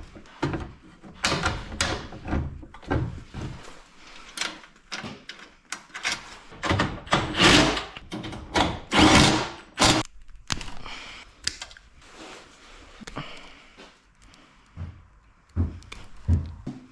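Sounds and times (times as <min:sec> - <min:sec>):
rattling and scraping: 0:00.0 - 0:10.1.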